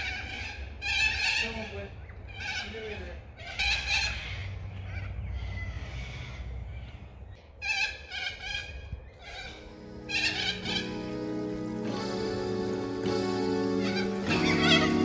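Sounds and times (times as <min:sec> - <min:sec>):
cockatoos screeching: 0:07.6 - 0:11.4, 0:13.0 - 0:15.0.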